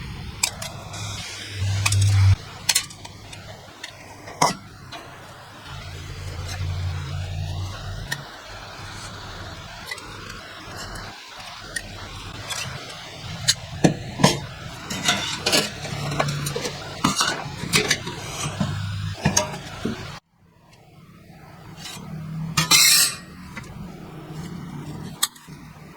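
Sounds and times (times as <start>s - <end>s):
low hum: 0.0s - 20.2s
light metal clinks and scrapes: 21.8s - 23.7s.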